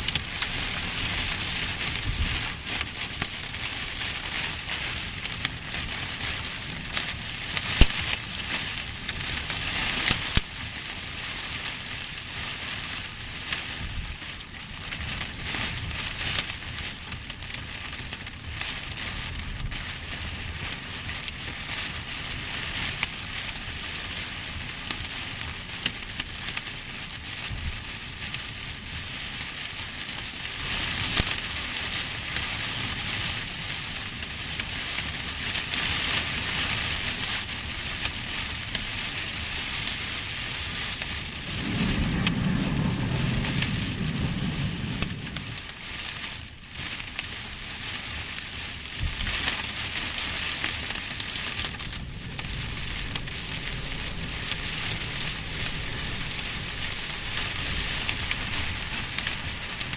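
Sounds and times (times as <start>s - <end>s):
heavy rain pouring: 0.0s - 59.9s
low rumble: 41.2s - 46.0s, 50.1s - 59.9s.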